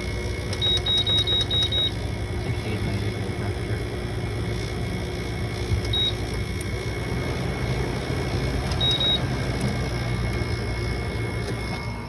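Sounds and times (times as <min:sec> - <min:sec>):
air conditioner humming: 0:00.0 - 0:12.0
control panel beeps: 0:00.5 - 0:02.0, 0:05.8 - 0:06.4, 0:08.6 - 0:10.5.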